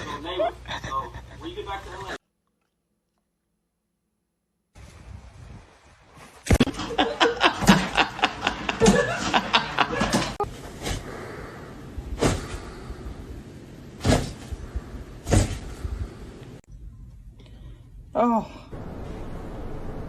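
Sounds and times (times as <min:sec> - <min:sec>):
person laughing: 0:00.0 - 0:01.6, 0:06.6 - 0:10.5.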